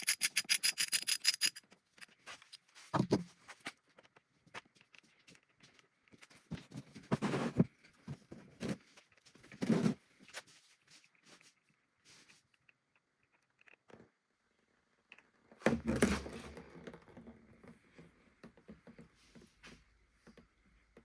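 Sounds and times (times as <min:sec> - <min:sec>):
socket ratchet clicking: 0:00.0 - 0:01.6
tools scraping and knocking: 0:00.0 - 0:03.6.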